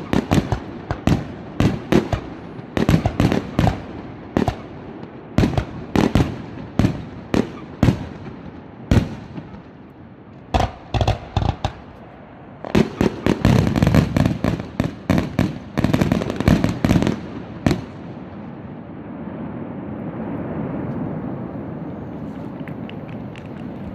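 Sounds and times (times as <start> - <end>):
fireworks bursting: 0.0 - 18.8
steady low rushing noise: 3.8 - 16.4, 17.2 - 23.9.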